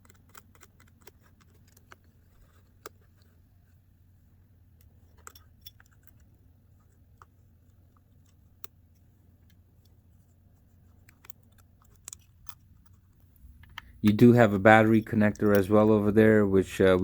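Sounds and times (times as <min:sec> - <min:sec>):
screwdriver clicking on tiny screws: 0:00.0 - 0:02.0
faint low hum: 0:00.0 - 0:17.0.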